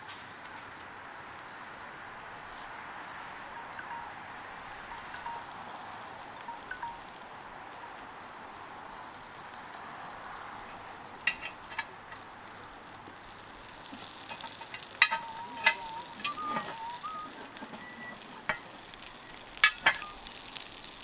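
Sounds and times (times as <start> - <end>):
egg sizzling in a pan: 3.4 - 21.0
whistle-like tone: 15.0 - 18.2, 19.9 - 20.3.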